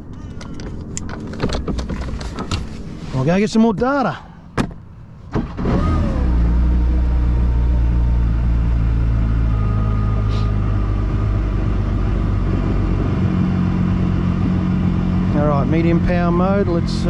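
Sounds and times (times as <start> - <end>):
jet ski engine idling: 5.5 - 17.0.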